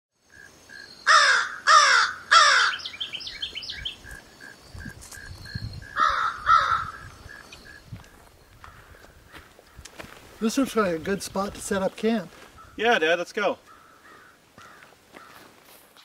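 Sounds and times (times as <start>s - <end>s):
bird harsh falling calls: 1.0s - 4.2s, 4.8s - 7.8s, 12.4s - 15.5s.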